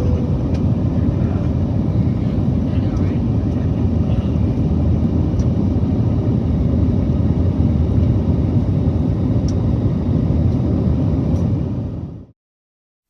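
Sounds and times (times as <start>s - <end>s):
airliner engine rumble from cabin: 0.0s - 12.4s.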